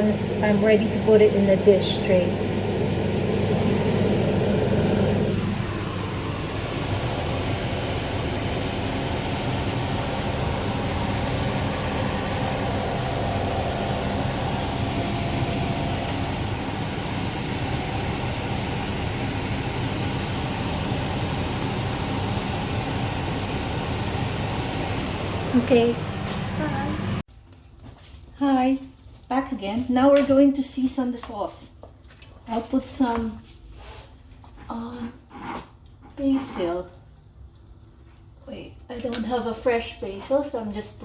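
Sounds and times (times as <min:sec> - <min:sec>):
kitchen appliance humming: 0:00.0 - 0:27.2.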